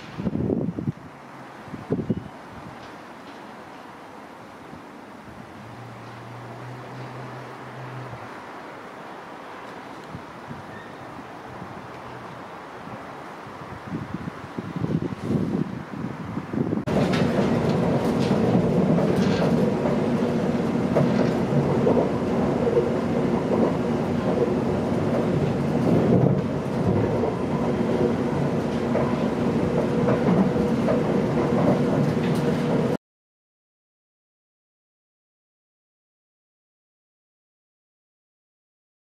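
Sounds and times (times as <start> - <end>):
wind on microphone: 0.0 - 2.9, 10.0 - 32.9
train rumbling at speed: 0.0 - 33.0
wheels clicking over rail joints: 2.7 - 4.1, 16.9 - 33.0.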